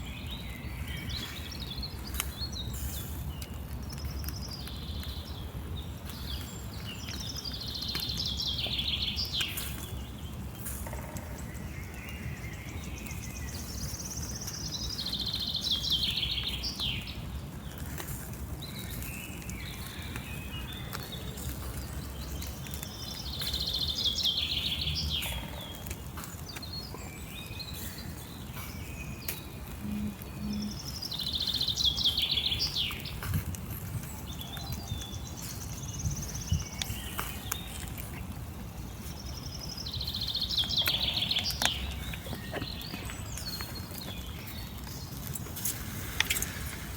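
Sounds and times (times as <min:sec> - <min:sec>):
songbird trill: 0:00.0 - 0:46.9
low outdoor rumble: 0:16.4 - 0:46.9.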